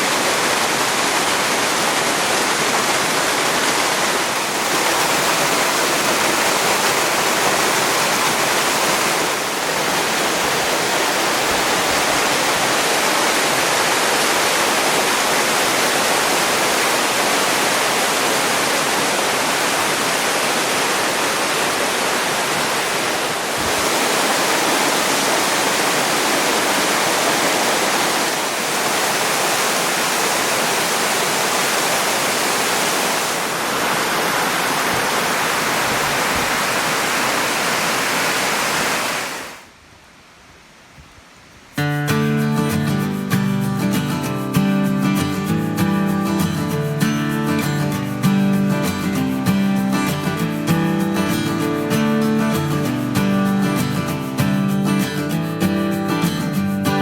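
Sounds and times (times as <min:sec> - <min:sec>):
waterfall rushing: 0:00.0 - 0:39.8, 0:41.8 - 0:57.0.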